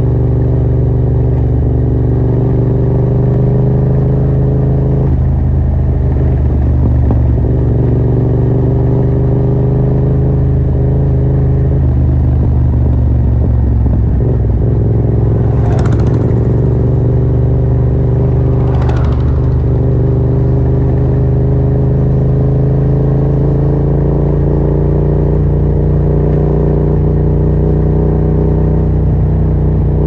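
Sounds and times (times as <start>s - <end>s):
loud motorcycle engine revving: 13.8s - 23.9s
brief rasping clatter: 15.4s - 17.0s, 18.1s - 20.0s.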